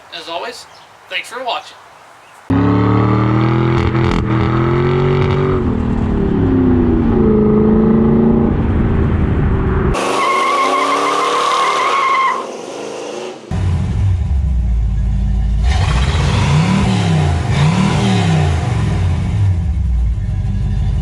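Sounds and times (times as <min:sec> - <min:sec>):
vehicle engine revving: 0:02.5 - 0:11.8, 0:12.4 - 0:21.0
high-pitched tire squeal: 0:10.0 - 0:13.5.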